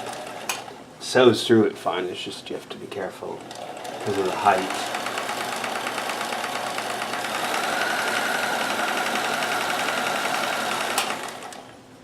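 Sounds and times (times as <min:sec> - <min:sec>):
sewing machine needle clatter: 0:03.4 - 0:11.7
motor whine: 0:03.5 - 0:11.8.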